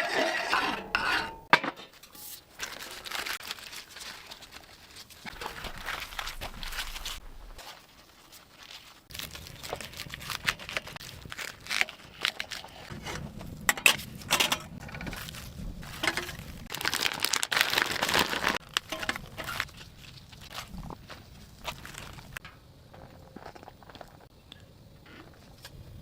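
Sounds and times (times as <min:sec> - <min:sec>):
material crinkling and rustling: 0:01.9 - 0:22.4.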